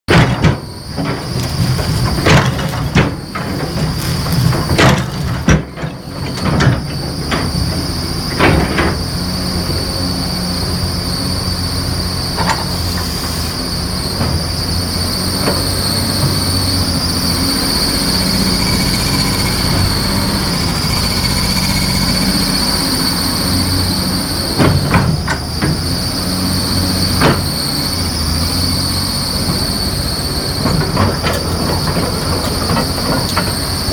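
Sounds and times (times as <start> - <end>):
excavator diesel engine running: 0.1 - 33.9
high-pitched whine: 7.1 - 32.8.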